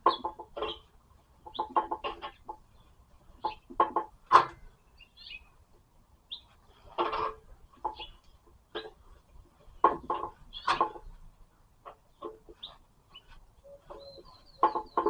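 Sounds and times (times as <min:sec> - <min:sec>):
chickens clucking: 0:00.0 - 0:04.1, 0:07.8 - 0:15.0.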